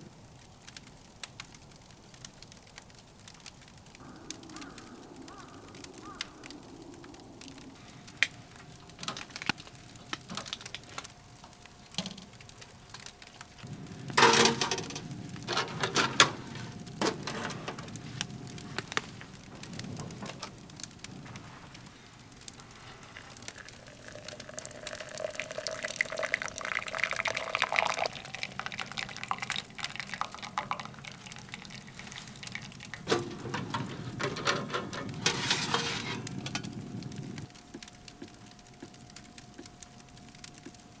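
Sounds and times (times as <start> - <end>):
sharp clicks and crackles: 0.7 - 24.4, 30.5 - 41.0
liquid being poured: 23.2 - 36.2.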